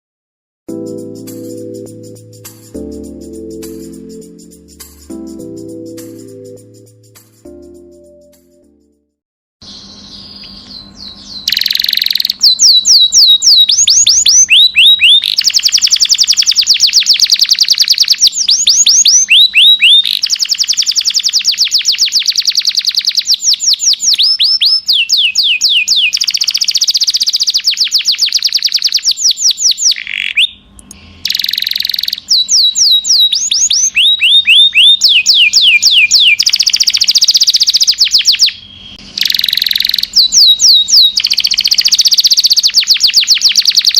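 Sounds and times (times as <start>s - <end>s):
canary singing fast trills: 9.6s - 43.9s.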